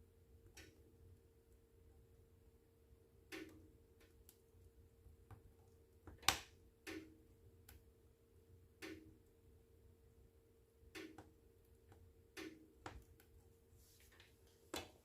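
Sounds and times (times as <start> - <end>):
wood fire crackling: 3.1 - 15.0.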